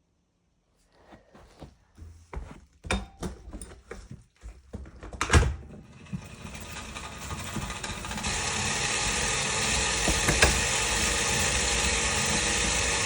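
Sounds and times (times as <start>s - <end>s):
bicycle trainer whirring: 5.6s - 13.0s
irregular knocks and clunks: 9.8s - 11.2s.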